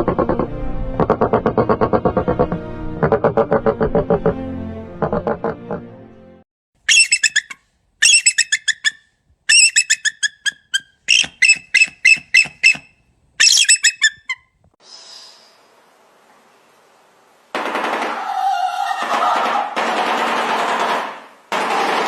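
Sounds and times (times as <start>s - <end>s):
bird calling high-pitched notes: 6.9s - 14.4s
faint hiss: 14.8s - 17.5s.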